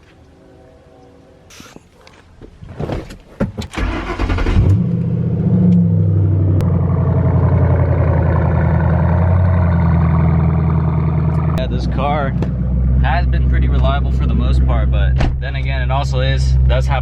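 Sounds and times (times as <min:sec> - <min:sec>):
car engine starting and idling: 0:02.6 - 0:17.0.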